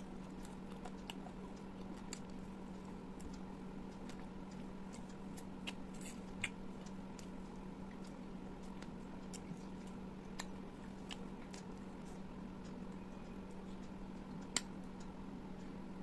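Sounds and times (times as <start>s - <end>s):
soft chewing: 0.0s - 16.0s
steady low hum: 0.0s - 16.0s.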